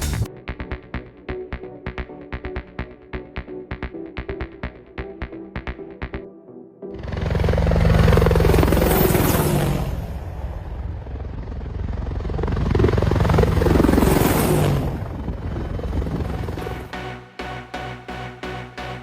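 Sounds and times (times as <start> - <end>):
helicopter rotor chop: 7.0 - 17.0.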